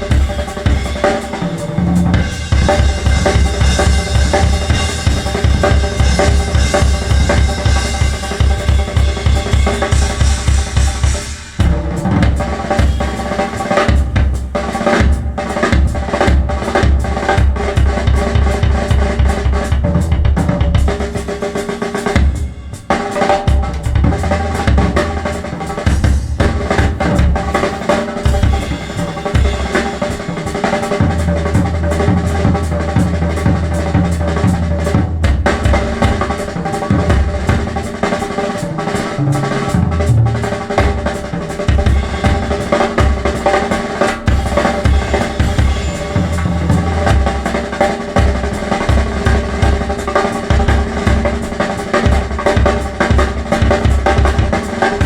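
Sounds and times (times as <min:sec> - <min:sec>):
loud drum-led music with bass: 0:00.0 - 0:55.0.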